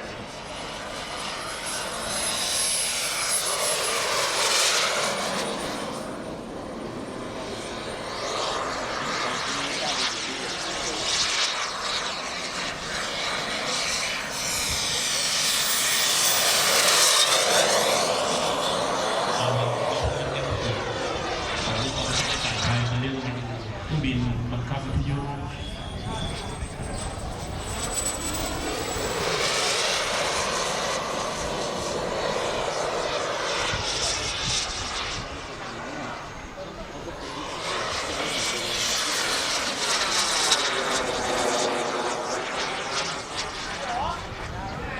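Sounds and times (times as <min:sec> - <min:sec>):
model jet turbine flying past: 0:00.0 - 0:44.9.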